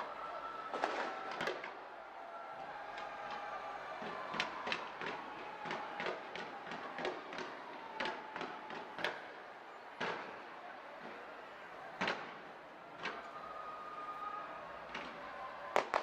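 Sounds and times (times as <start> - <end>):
fireworks bangs: 0.6 - 1.8, 4.0 - 11.2, 15.7 - 16.0.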